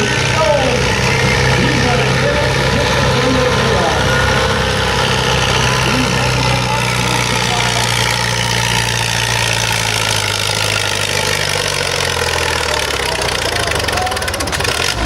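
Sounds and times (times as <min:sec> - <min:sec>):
tractor engine running loud: 0:00.0 - 0:15.0.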